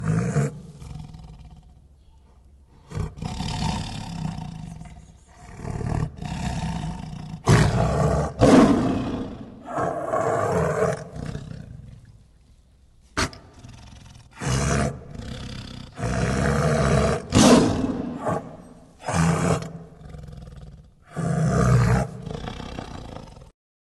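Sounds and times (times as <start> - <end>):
big cat harsh calls: 7.4 - 11.4, 16.0 - 20.0.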